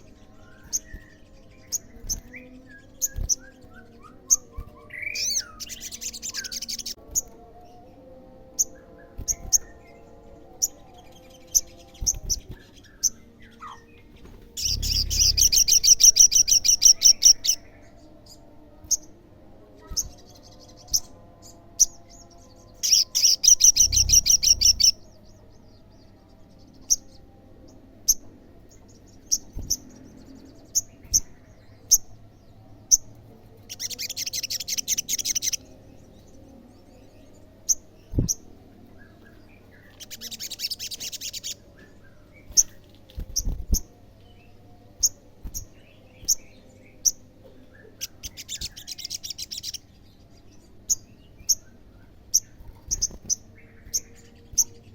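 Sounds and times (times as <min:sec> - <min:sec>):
bird chirps: 0:11.5 - 0:17.7, 0:22.8 - 0:25.2
bird trill: 0:14.6 - 0:17.7, 0:22.8 - 0:25.0.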